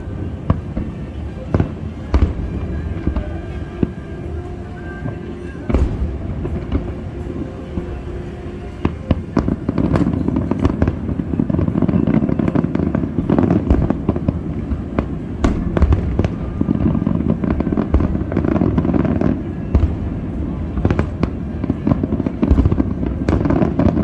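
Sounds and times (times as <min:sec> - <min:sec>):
firework bangs: 0:00.0 - 0:24.0.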